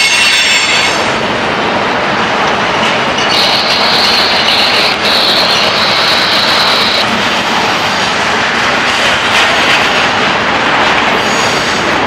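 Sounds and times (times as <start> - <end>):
high wheel squeal: 0.0 - 1.1, 3.2 - 7.0
freight cars rolling on rails: 0.0 - 12.0.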